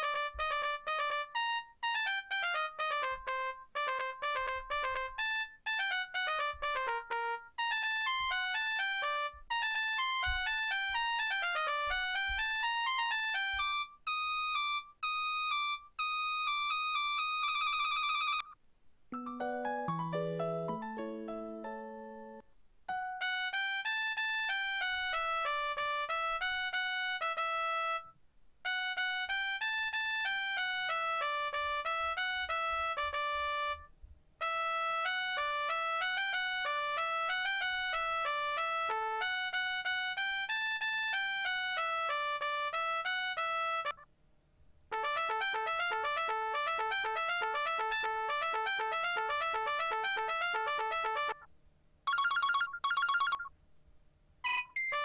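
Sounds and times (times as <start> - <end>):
beepy phone ringtone melodies: 0.0 - 18.6, 19.2 - 28.0, 28.7 - 33.8, 45.0 - 51.5, 52.1 - 53.5, 54.4 - 55.0.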